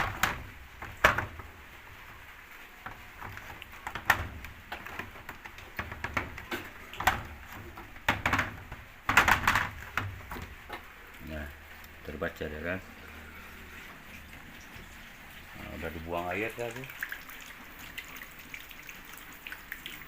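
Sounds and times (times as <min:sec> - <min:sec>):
plastic lid knocks and clunks: 0:00.0 - 0:01.5, 0:03.3 - 0:10.6.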